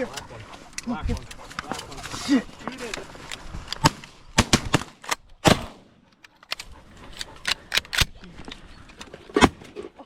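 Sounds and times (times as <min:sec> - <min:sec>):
shotgun shots: 0:03.8 - 0:05.9.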